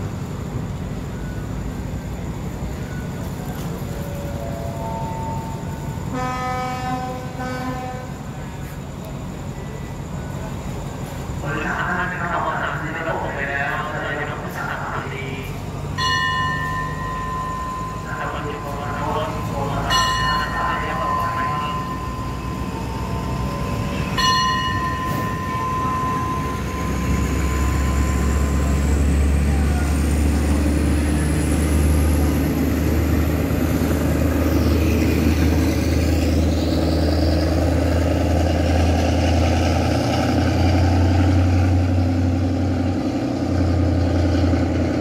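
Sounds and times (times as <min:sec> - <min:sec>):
train coaches passing drone: 0:00.0 - 0:45.0
steady high tone: 0:03.8 - 0:06.3, 0:11.4 - 0:39.1.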